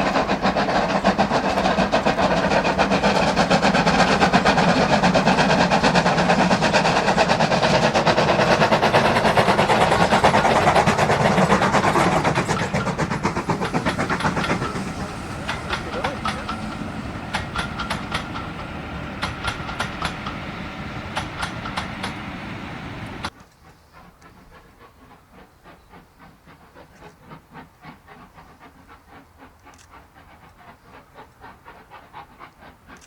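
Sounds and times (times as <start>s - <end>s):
steam locomotive exhaust beats: 0.0s - 23.4s
train wheel clatter: 0.0s - 33.0s.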